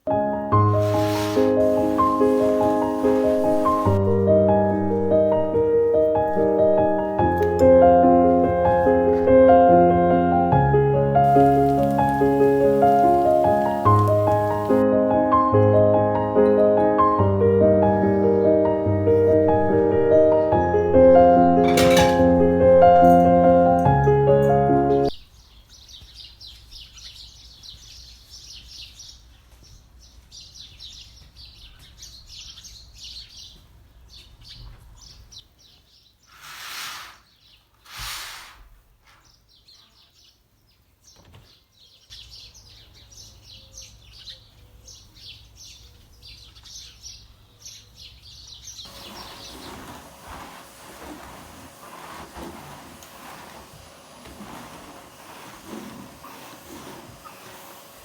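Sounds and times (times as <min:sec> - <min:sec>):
light clattering: 0:21.6 - 0:24.0
small birds chirping: 0:24.9 - 0:38.2, 0:38.9 - 0:58.0.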